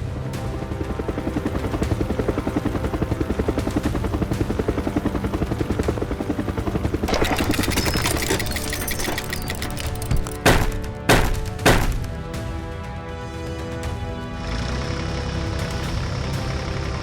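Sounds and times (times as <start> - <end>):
machine pulsing rapidly: 7.0 - 12.1.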